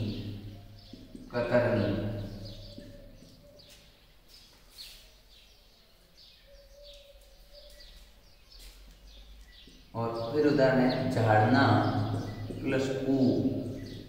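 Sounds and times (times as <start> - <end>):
faint bird chirping: 0.0 - 14.0.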